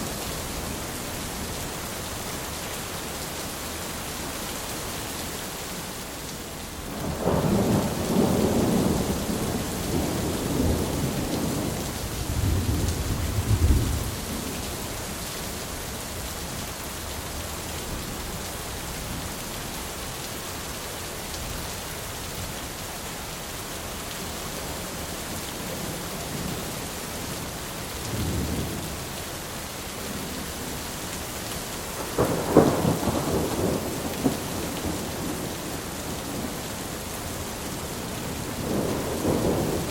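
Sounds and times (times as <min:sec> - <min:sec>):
steady rain: 0:00.0 - 0:39.9
thunder rumbling: 0:06.9 - 0:14.8, 0:32.0 - 0:36.7, 0:38.0 - 0:39.9
sharp thunderclap: 0:32.2 - 0:35.5.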